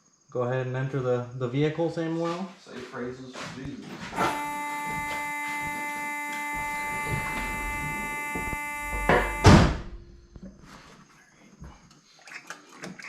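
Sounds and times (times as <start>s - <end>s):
sustained musical tones: 4.2s - 10.4s
loud heavy thunk: 8.4s - 10.1s.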